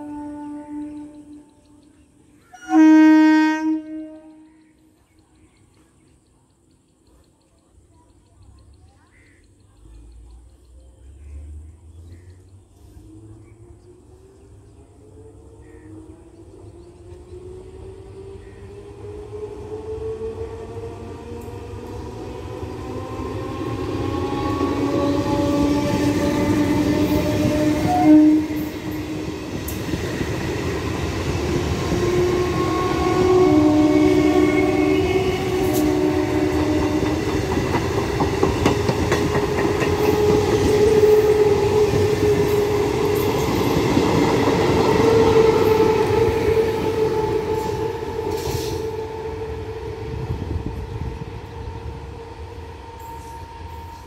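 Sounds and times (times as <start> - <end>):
train horn blast: 0.0 - 1.8, 2.5 - 4.6, 24.3 - 29.8, 31.6 - 37.8, 39.0 - 43.8, 44.9 - 50.5
train whine rising in pitch: 13.0 - 54.0
wheels clacking over rail joints: 21.4 - 48.6.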